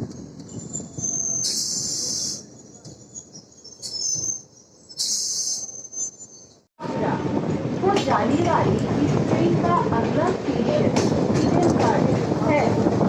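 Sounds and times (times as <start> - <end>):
train rumble: 0.0 - 13.0
high-pitched wheel squeal: 0.5 - 6.6.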